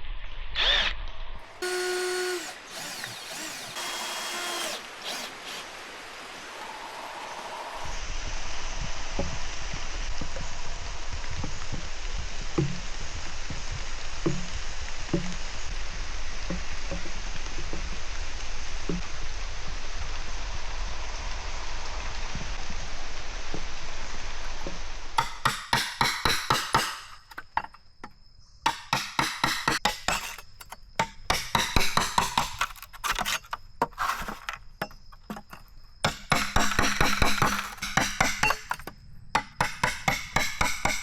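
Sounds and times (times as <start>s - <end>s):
rain hiss: 1.5s - 25.2s
bamboo chopped with wooden knocks: 12.6s - 13.0s, 14.2s - 15.4s, 24.6s - 27.8s, 28.7s - 30.4s, 31.0s - 34.6s, 35.2s - 41.0s.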